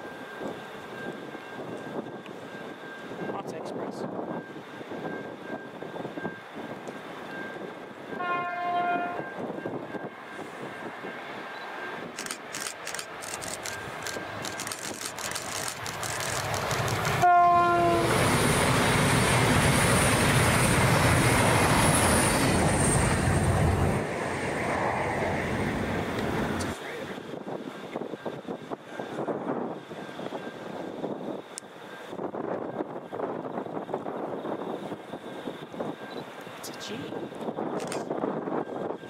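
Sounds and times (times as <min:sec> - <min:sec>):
train passing with rumble: 0:00.0 - 0:39.0
train horn blast: 0:08.1 - 0:09.4, 0:17.2 - 0:18.2
rapid clicking from rails: 0:11.6 - 0:17.3.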